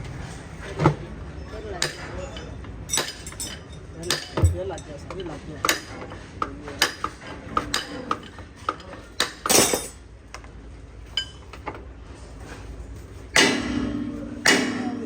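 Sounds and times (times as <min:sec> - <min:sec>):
metal tools clinking: 0:01.8 - 0:05.4, 0:09.4 - 0:10.0
strikes on metal ringing: 0:13.4 - 0:15.0.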